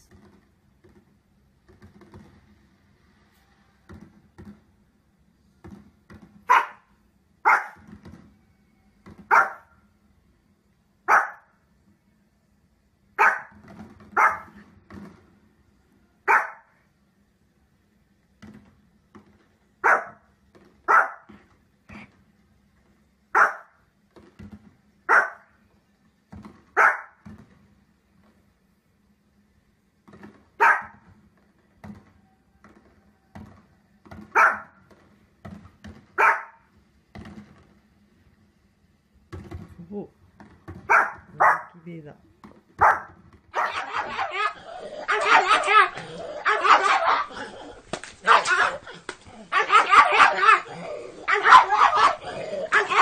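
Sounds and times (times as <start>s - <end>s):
small dog barking: 6.5s - 7.8s, 9.3s - 9.7s, 11.1s - 11.5s, 13.2s - 13.6s, 14.2s - 14.6s, 16.3s - 16.7s, 19.8s - 20.2s, 20.9s - 21.3s, 23.4s - 23.8s, 25.1s - 25.5s, 26.8s - 27.2s, 30.6s - 31.0s, 34.4s - 34.7s, 36.2s - 36.7s, 40.9s - 41.8s, 42.8s - 53.0s.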